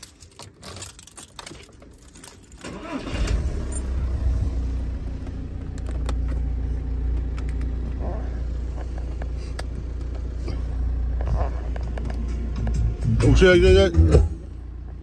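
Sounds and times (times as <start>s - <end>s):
keys jangling: 0.0s - 3.0s
car engine cranking and starting: 0.0s - 15.0s
car engine idling: 0.0s - 15.0s.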